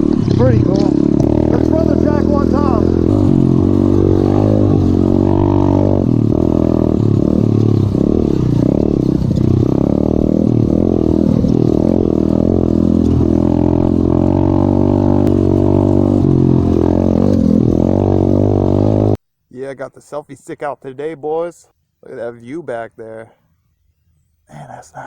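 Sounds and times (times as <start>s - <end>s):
pit bike engine revving: 0.0s - 19.2s.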